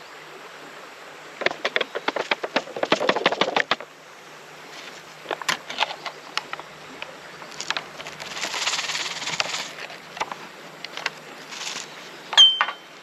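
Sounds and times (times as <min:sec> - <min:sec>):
pouch rustling: 0:07.5 - 0:10.3, 0:11.4 - 0:12.0.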